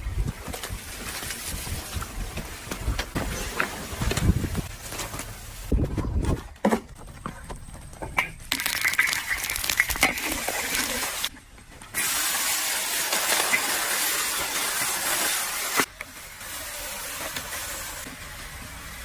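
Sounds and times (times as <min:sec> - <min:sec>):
food sizzling in hot oil: 0:08.5 - 0:11.3, 0:12.0 - 0:18.2.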